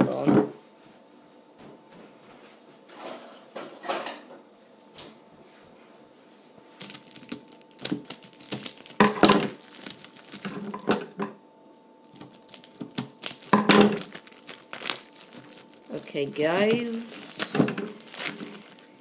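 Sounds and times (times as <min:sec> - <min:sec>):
plastic wrap crinkling and tearing: 0:06.8 - 0:11.0, 0:12.0 - 0:19.0.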